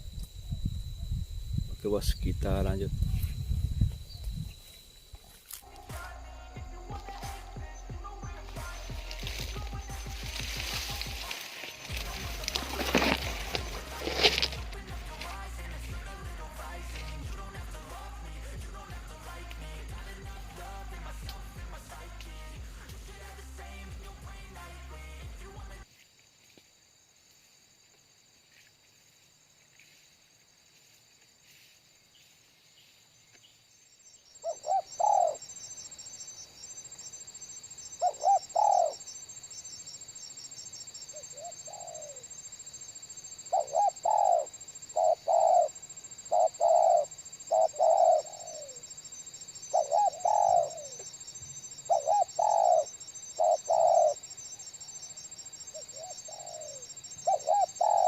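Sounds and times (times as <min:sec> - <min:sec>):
high-pitched drone: 0:00.0 - 0:25.8
dove cooing: 0:05.6 - 0:17.9, 0:34.4 - 0:35.8, 0:38.0 - 0:39.2, 0:41.1 - 0:42.4, 0:43.4 - 0:58.0.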